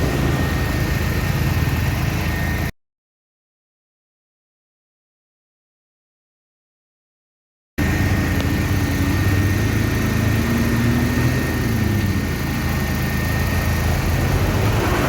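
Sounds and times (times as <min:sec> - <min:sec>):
engine running steadily: 0:00.0 - 0:02.7, 0:07.8 - 0:15.0.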